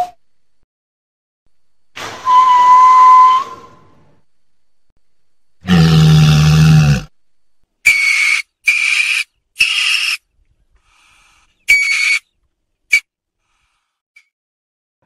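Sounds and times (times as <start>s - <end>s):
weasel squeaky calls: 8.0s - 10.2s, 11.7s - 12.3s.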